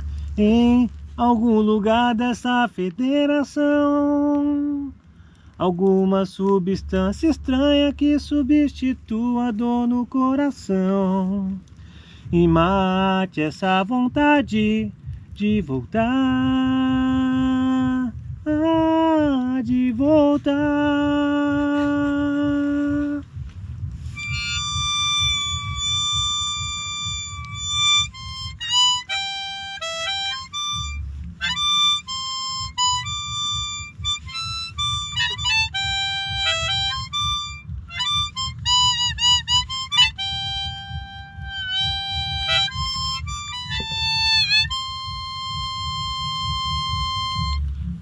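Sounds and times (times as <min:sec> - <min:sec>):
low steady rumble: 0:00.0 - 0:48.0
harmonica melody: 0:24.1 - 0:48.0.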